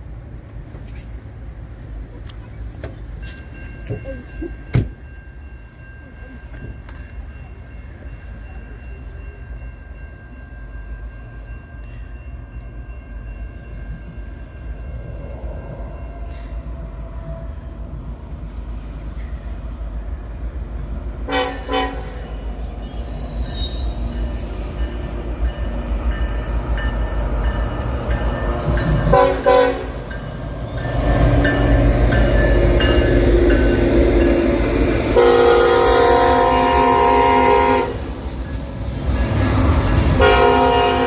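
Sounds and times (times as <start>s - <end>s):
locomotive engine and wheels rumble: 0.0s - 41.0s
locomotive chime horn: 21.3s - 22.6s, 23.4s - 38.2s, 39.2s - 41.0s.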